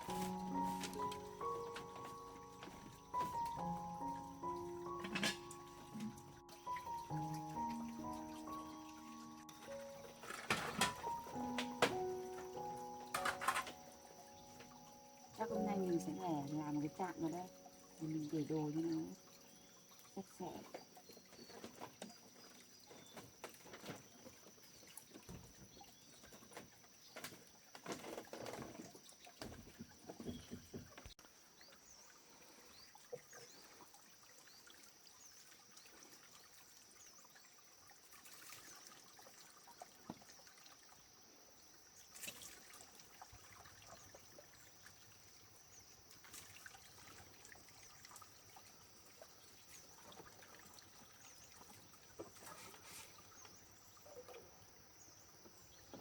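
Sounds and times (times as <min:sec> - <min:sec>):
water trickling and splashing: 0:00.0 - 0:56.0
knocks and clatter of handling: 0:05.0 - 0:06.2, 0:10.2 - 0:12.0, 0:13.1 - 0:13.8.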